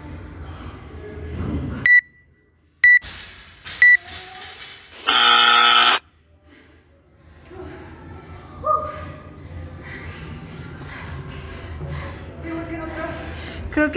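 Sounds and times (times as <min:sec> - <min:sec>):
short high beeps: 0:01.9 - 0:02.1, 0:02.8 - 0:03.1
low buzzer tone: 0:05.1 - 0:06.0.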